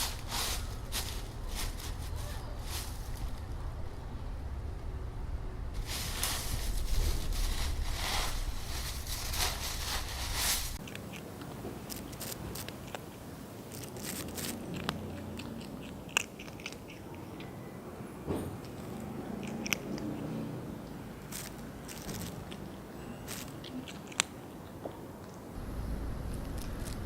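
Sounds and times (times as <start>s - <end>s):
dry leaves crunching underfoot: 0.0s - 3.8s, 5.8s - 10.8s, 21.3s - 22.4s.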